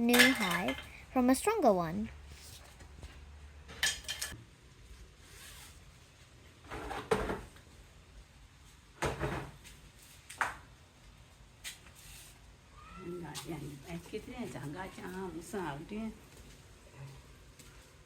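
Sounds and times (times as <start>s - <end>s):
objects knocking and clunking: 0.0s - 1.4s.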